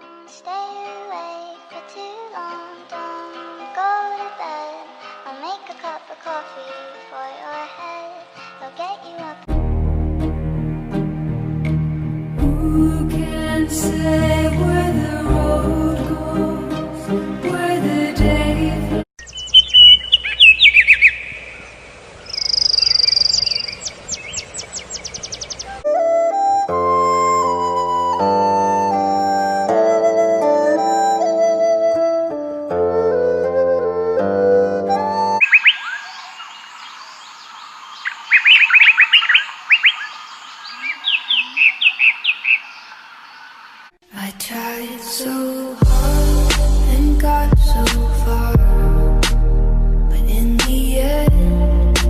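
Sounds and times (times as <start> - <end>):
music: 0.0 - 19.1, 25.8 - 35.4, 44.7 - 52.0
songbird singing: 19.2 - 25.9, 35.1 - 44.0
steady background hiss: 20.1 - 25.8.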